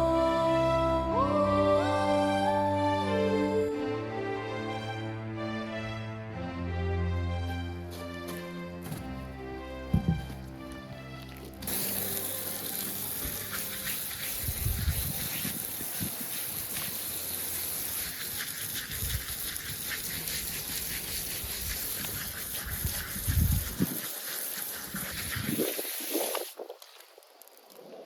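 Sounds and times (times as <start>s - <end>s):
background music: 0.0s - 14.5s
flowing water rushing: 10.4s - 27.2s.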